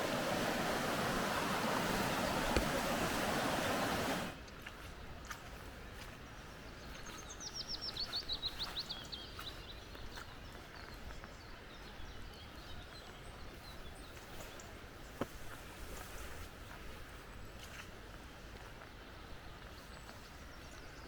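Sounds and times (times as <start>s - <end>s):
faint bird calls: 0.0s - 4.4s
forest ambience hiss: 0.0s - 11.6s, 13.5s - 21.0s.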